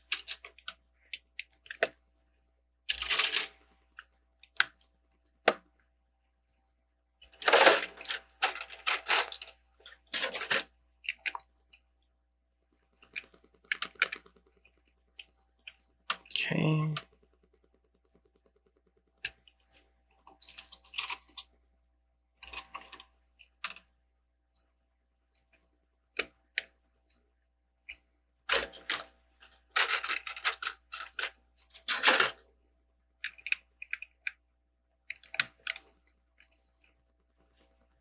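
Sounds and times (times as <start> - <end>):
plastic bricks clicking and clattering: 0.0 - 2.0, 2.9 - 5.6, 7.2 - 11.5, 12.9 - 21.6, 27.9 - 32.4, 33.2 - 34.4, 35.0 - 37.6.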